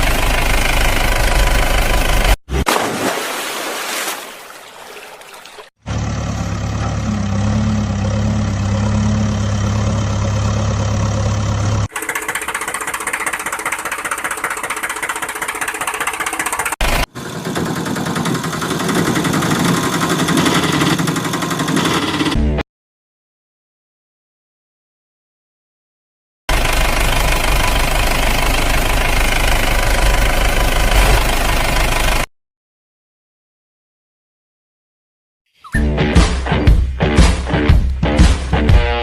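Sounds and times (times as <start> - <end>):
vehicle engine running and idling: 0.0 - 2.4, 5.8 - 22.6, 26.5 - 32.3.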